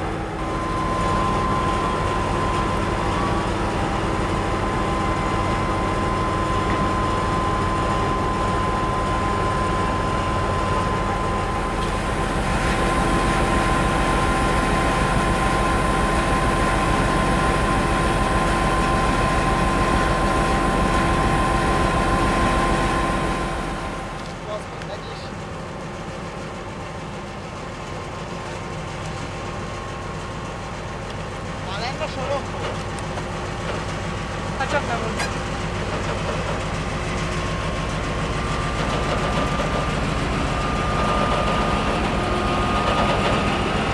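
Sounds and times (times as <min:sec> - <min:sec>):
diesel locomotive engine throbbing: 0:00.0 - 0:43.9
steady high whine: 0:00.0 - 0:43.9.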